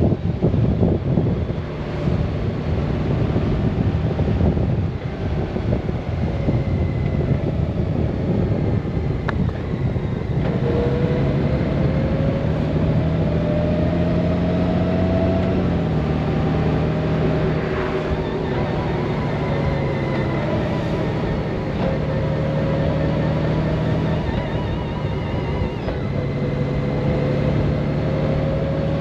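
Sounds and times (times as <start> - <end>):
wind noise on microphone: 0.0 - 29.0
motorcycle engine running: 15.6 - 29.0.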